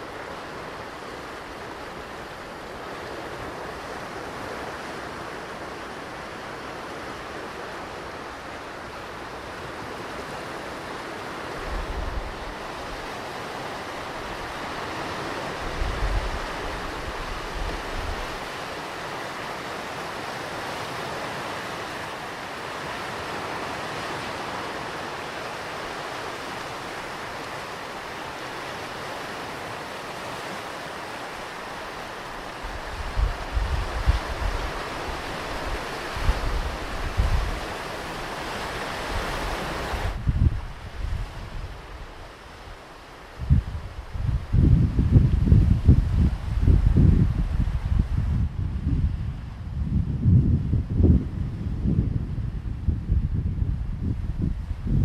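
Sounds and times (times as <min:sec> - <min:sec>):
ocean surf breaking on beach: 0:00.0 - 0:55.0
wind rumble on microphone: 0:07.0 - 0:22.0, 0:28.5 - 0:55.0.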